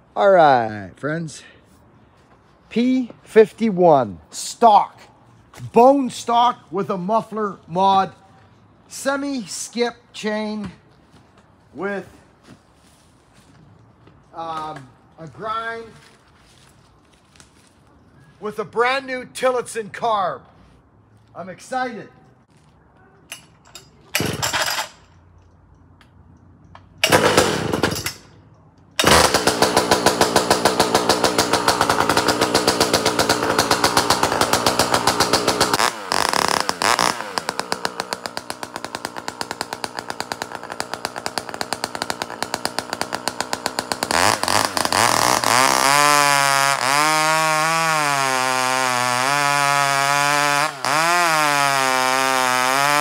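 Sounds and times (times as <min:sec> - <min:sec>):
chainsaw starting and running: 0:27.0 - 0:28.2, 0:29.0 - 0:53.0.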